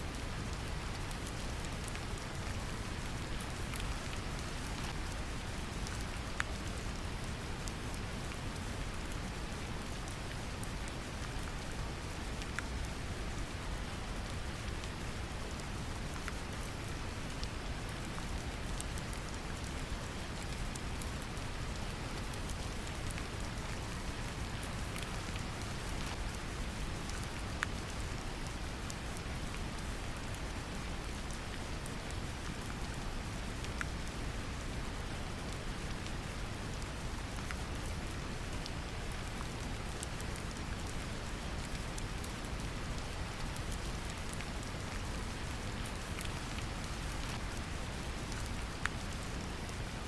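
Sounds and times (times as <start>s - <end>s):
gentle rain: 0.0s - 50.0s.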